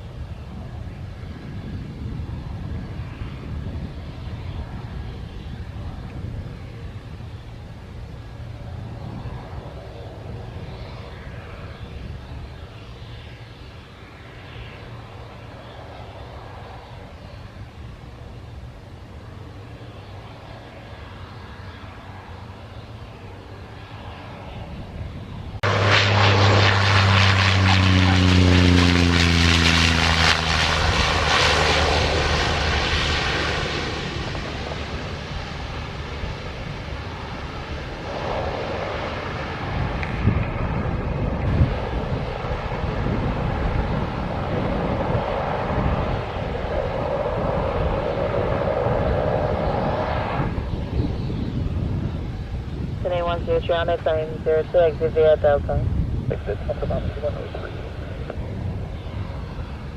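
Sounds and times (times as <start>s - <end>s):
aircraft engine drone: 0.0s - 59.9s.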